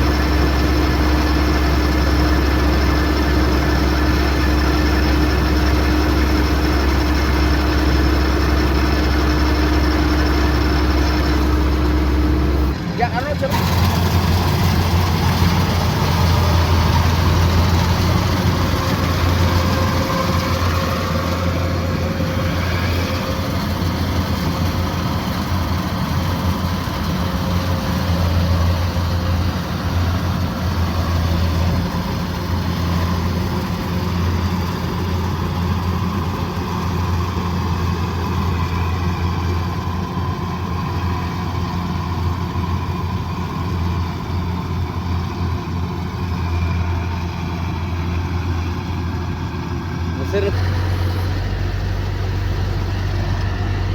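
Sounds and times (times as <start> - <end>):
diesel engine droning: 0.0 - 53.9.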